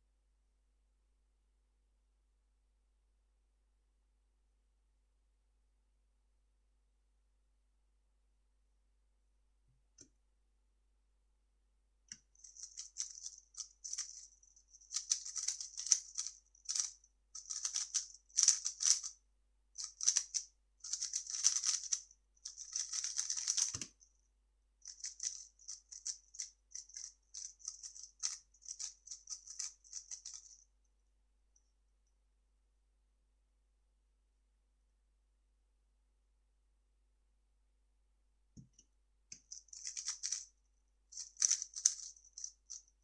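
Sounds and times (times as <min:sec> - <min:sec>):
speed cube plastic clicking: 0:12.4 - 0:19.1, 0:19.8 - 0:23.9, 0:24.9 - 0:30.4, 0:39.4 - 0:40.4, 0:41.2 - 0:42.5.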